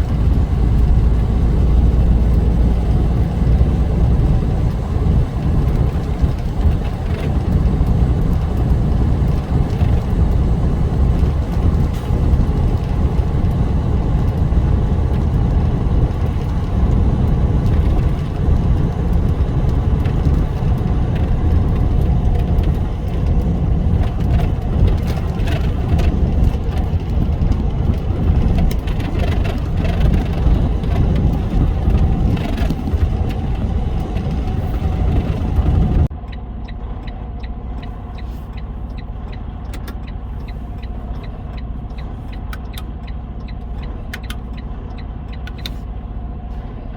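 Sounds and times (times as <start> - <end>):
car engine and road rumble: 0.0 - 46.9.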